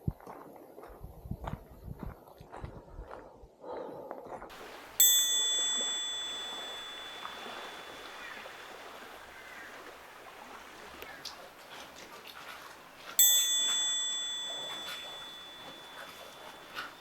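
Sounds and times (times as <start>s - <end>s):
small bell ringing: 4.5s - 9.3s, 13.1s - 17.0s.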